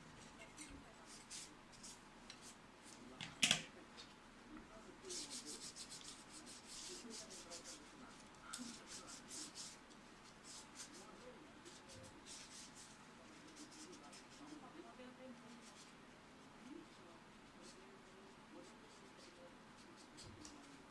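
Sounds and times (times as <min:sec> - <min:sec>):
rapid rubbing strokes: 0:05.0 - 0:14.8.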